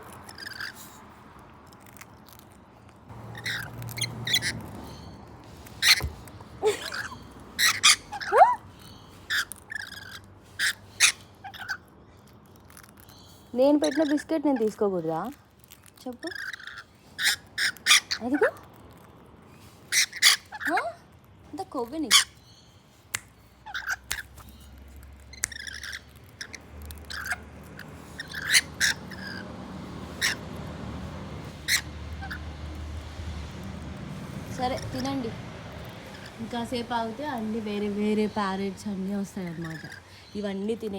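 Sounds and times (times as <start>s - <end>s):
parrots squawking: 0.0s - 1.0s, 3.1s - 12.0s, 13.6s - 15.0s, 16.1s - 18.7s, 19.8s - 21.0s, 21.8s - 22.4s, 23.6s - 33.1s, 34.2s - 37.1s, 39.2s - 40.6s.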